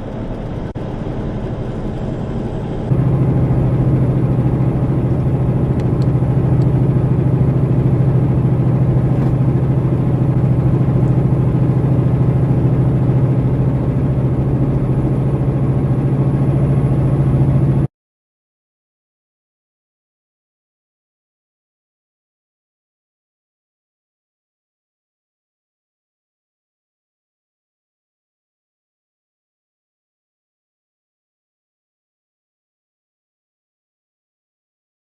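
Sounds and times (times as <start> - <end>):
road noise: 0.0 - 17.9
vehicle engine drone: 0.0 - 17.9.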